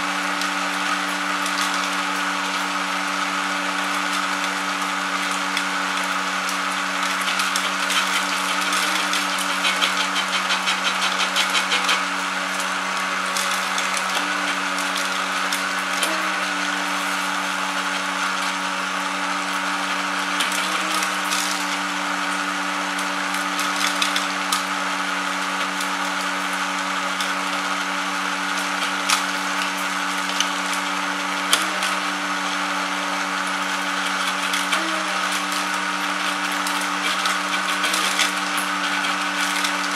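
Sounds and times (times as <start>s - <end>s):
electric motor humming: 0.0s - 39.9s
seeds rattling in drum: 6.8s - 12.2s.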